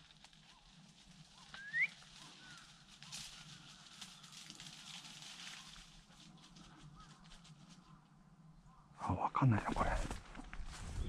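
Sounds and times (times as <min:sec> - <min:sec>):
rustling of dry brush: 0:00.0 - 0:08.1
faint bird chirps: 0:01.3 - 0:04.5
rising bird call: 0:01.5 - 0:02.7.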